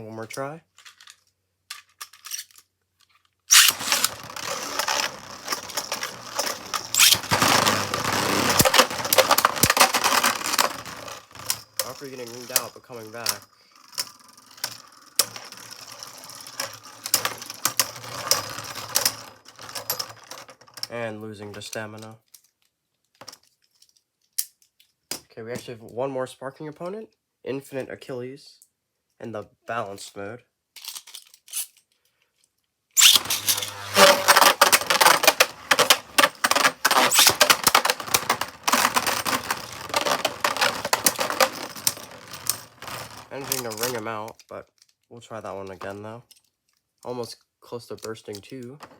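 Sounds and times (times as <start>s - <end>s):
spinning tops clacking: 3.5s - 12.6s, 33.0s - 43.3s
spinning tops whirring: 3.5s - 12.6s, 33.0s - 43.3s.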